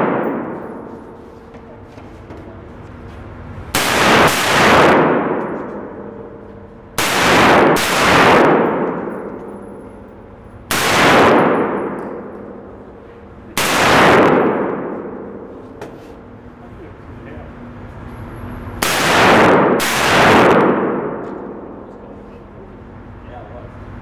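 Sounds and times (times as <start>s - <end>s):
gunshots with echoing ring: 0.0s - 1.4s, 3.7s - 15.6s, 18.8s - 21.9s.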